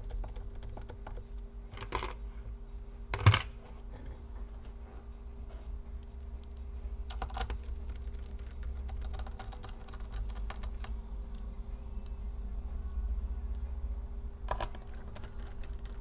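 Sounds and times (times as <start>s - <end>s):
steady low hum: 0.0s - 16.0s
small parts clicking and tapping: 14.5s - 16.0s.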